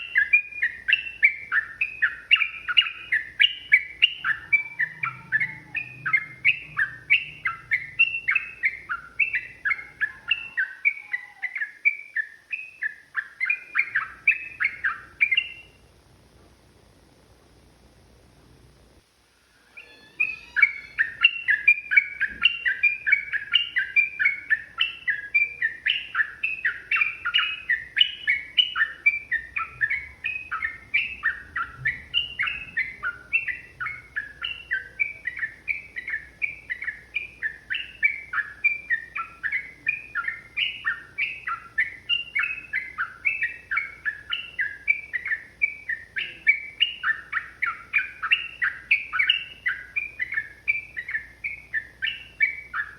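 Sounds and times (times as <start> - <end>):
bird bubbly chattering song: 0.0 - 15.8, 19.8 - 52.9.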